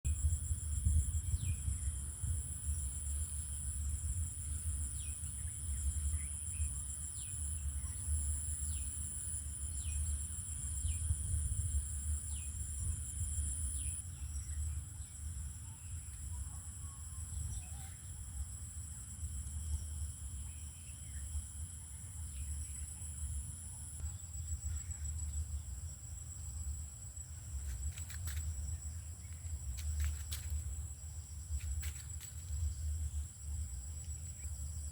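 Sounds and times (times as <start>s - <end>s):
insects droning: 0.1s - 34.9s.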